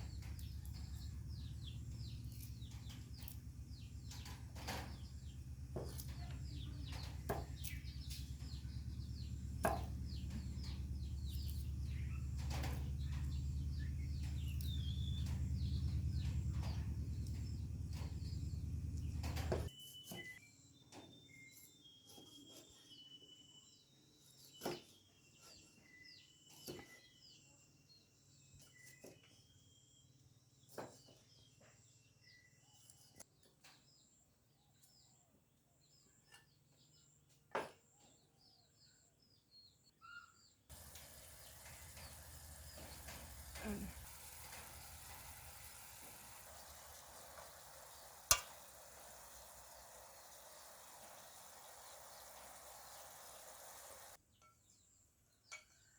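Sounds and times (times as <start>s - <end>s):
faint chirping: 40.0s - 54.2s
food sizzling in a pan: 40.7s - 54.2s.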